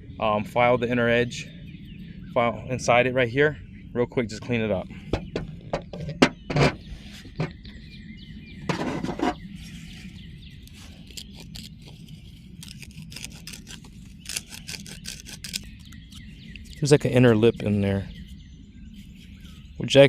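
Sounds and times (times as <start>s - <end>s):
file rasping plastic: 12.7s - 15.6s.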